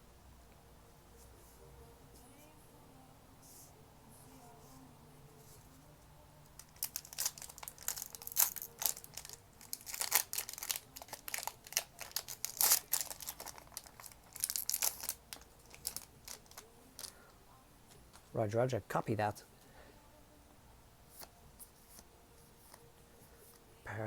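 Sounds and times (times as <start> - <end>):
foil wrapper crinkling and tearing: 6.6 - 17.2.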